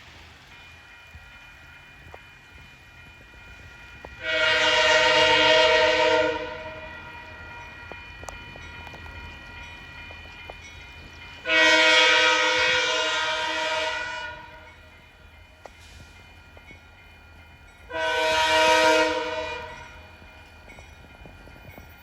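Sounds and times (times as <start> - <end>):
locomotive air horn blasts: 4.2 - 7.0, 11.4 - 14.7, 17.9 - 20.0.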